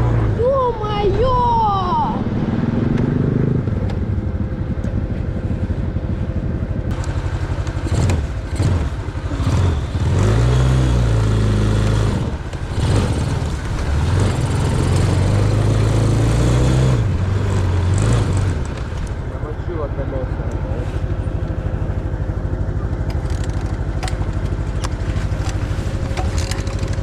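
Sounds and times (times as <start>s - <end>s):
off-road vehicle engine revving: 0.0s - 0.6s, 1.2s - 4.4s, 6.9s - 21.4s.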